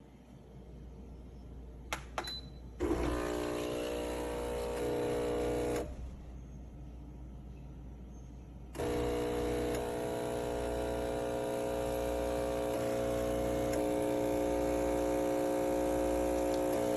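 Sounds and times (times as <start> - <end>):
low steady hum: 0.0 - 16.9
espresso machine pump buzzing: 2.8 - 6.0, 8.8 - 16.9.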